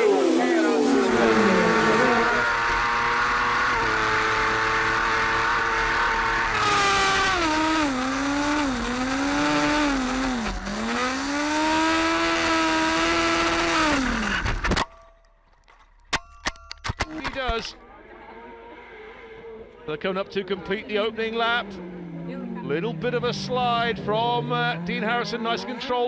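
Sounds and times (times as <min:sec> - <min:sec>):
racing motorcycle engine revving: 0:00.0 - 0:14.7, 0:20.9 - 0:26.0.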